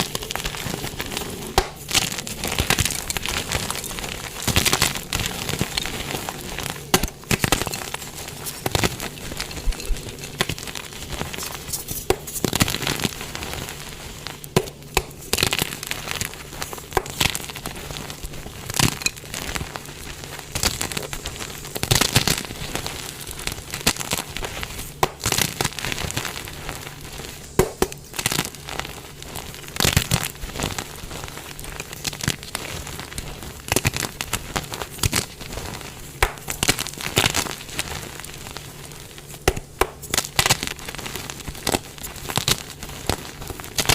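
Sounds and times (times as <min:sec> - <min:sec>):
chalk blocks crumbling and crunching: 0:00.0 - 0:13.8, 0:14.5 - 0:26.6.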